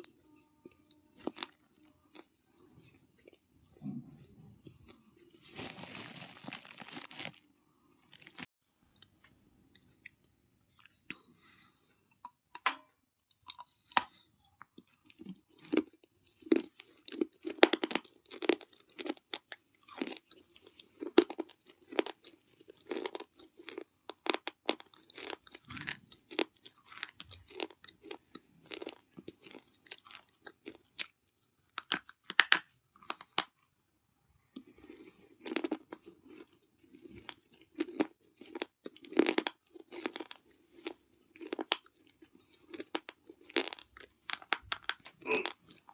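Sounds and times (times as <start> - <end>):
clay crunching while chewed: 13.2 - 33.7, 34.5 - 45.9.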